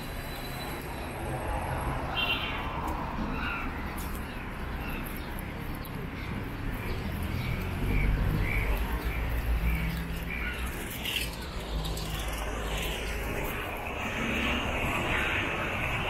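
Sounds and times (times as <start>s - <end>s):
street traffic rumble: 0.0s - 16.0s
rushing hiss of traffic: 7.2s - 16.0s.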